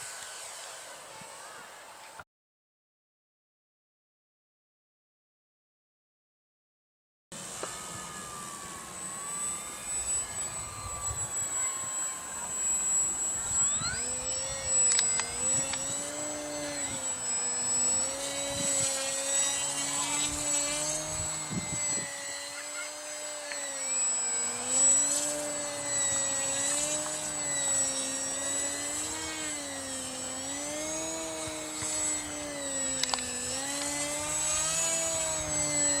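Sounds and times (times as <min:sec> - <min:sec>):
model airplane motor: 0:00.0 - 0:02.2, 0:07.4 - 0:36.0
steady high whine: 0:07.4 - 0:36.0.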